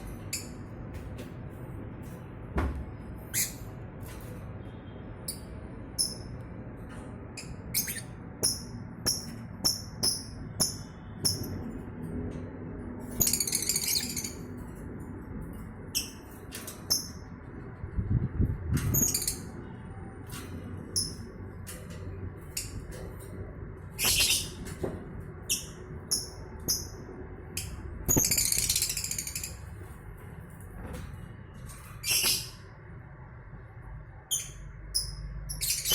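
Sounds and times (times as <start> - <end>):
lovebirds chirping: 7.4 - 11.6.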